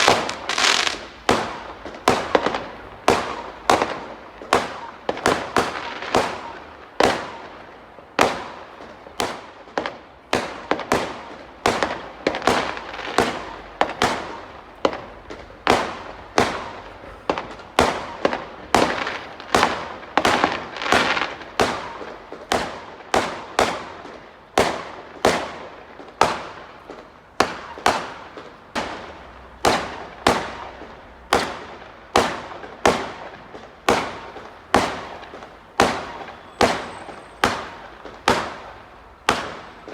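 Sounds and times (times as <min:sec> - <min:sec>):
firework shell bursts: 0:00.0 - 0:01.6
fireworks crackling: 0:00.0 - 0:39.9.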